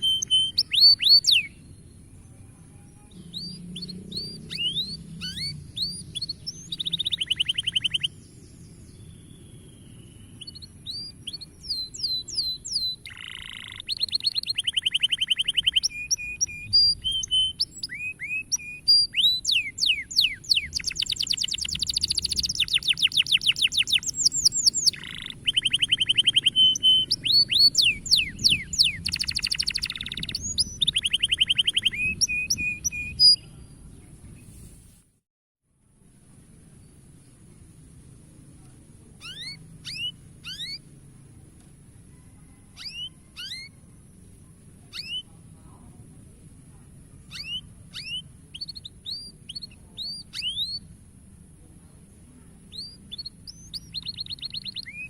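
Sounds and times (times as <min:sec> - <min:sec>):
canary singing trills: 0:00.0 - 0:33.6, 0:39.2 - 0:41.0, 0:42.2 - 0:45.6, 0:47.2 - 0:51.1, 0:52.6 - 0:55.0
faint high-pitched hiss: 0:33.4 - 0:35.2.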